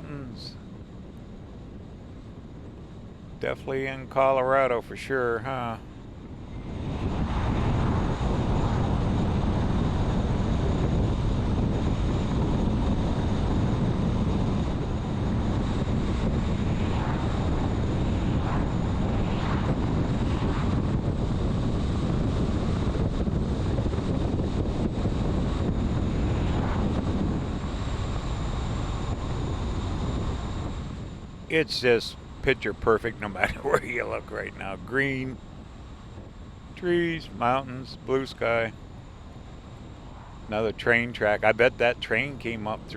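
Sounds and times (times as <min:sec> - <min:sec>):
wind buffeting microphone: 0:00.0 - 0:04.1, 0:05.2 - 0:42.9
vehicle road noise: 0:33.0 - 0:36.8.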